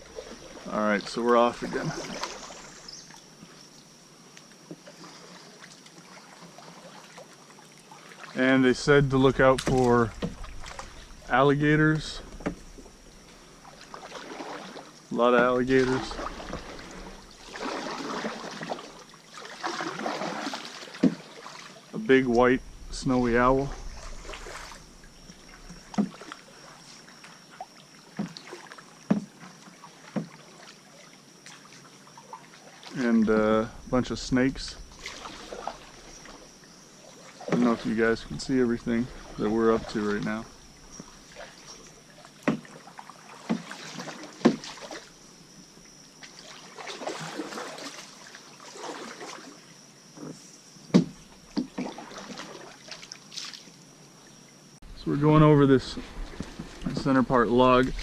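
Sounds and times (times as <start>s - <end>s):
canoe paddling: 0.0s - 58.0s
paddle knocks: 9.0s - 11.4s, 12.2s - 12.9s, 29.1s - 29.4s, 42.4s - 42.8s, 43.4s - 45.0s, 50.9s - 52.0s.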